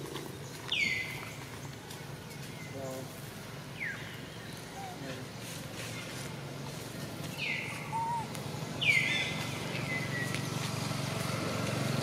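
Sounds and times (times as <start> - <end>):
bird whistling call: 7.4 - 9.3.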